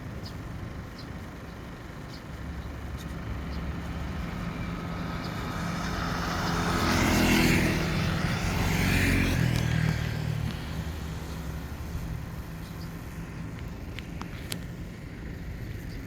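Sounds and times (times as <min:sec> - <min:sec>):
vehicle engine passing by: 0:02.4 - 0:13.7.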